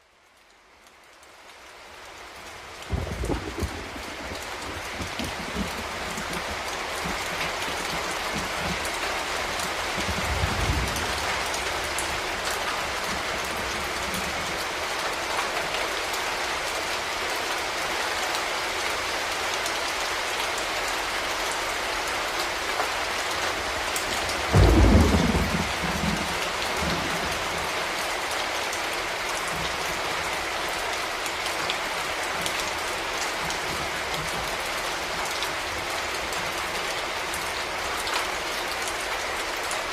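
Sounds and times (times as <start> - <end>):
heavy rain falling: 0.0 - 39.9
thunder rumbling: 2.9 - 12.3, 24.4 - 27.7.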